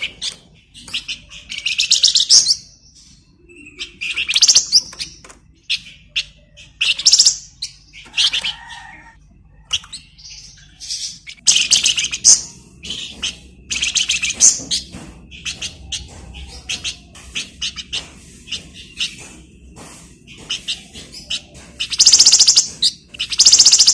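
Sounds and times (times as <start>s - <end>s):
songbird trilling and chattering: 0.0s - 8.6s, 9.6s - 23.9s.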